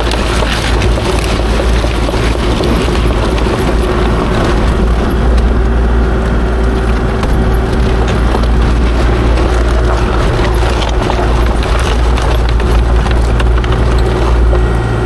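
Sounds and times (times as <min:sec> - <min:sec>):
diesel engine running with whine: 0:00.0 - 0:15.0.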